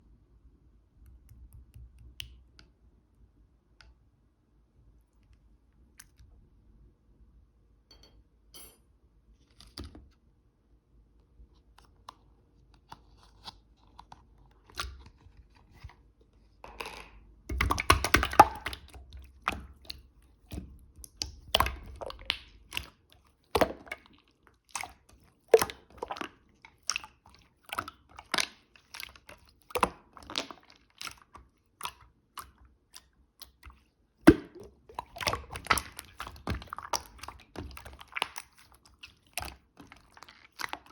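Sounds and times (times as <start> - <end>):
slime squishing and crackling: 17.5 - 32.6, 34.3 - 40.9.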